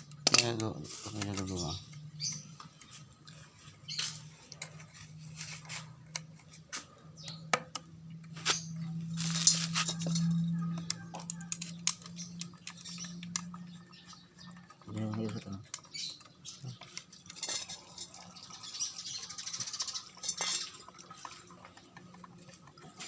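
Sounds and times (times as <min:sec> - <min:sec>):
tools and metal parts clicking: 0:00.0 - 0:03.2, 0:03.9 - 0:23.0
low hum: 0:01.8 - 0:14.9.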